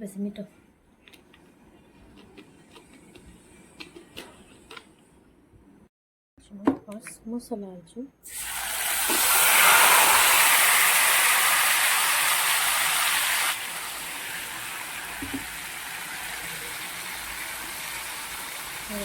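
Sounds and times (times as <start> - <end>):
spices sizzling in hot oil: 8.3 - 19.0.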